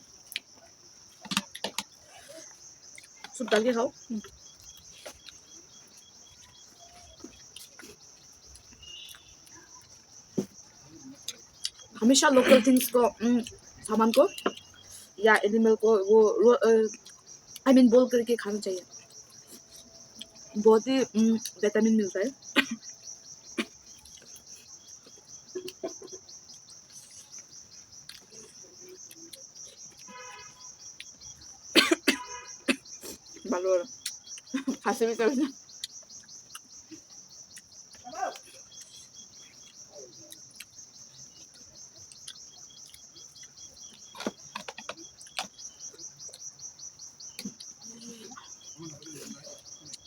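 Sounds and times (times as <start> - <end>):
crickets chirring: 0.0 - 50.0
chewing sounds: 0.2 - 12.0, 23.6 - 30.3, 35.7 - 50.0.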